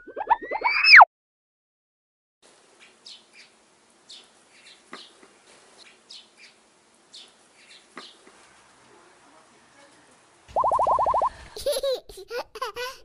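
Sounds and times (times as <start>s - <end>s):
small birds chirping: 2.7s - 8.6s.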